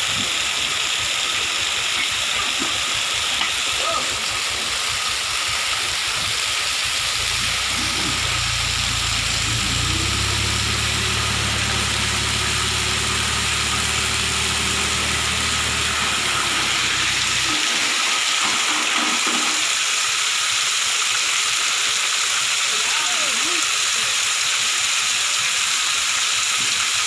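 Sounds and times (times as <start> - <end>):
steady rushing hiss: 0.0 - 27.0
dump truck engine idling: 0.1 - 20.5.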